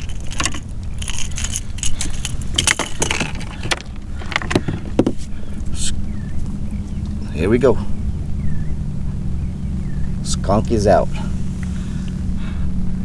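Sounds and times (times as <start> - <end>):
metal hooks clicking and jingling: 0.0 - 4.6
steady low rumble: 0.0 - 13.0.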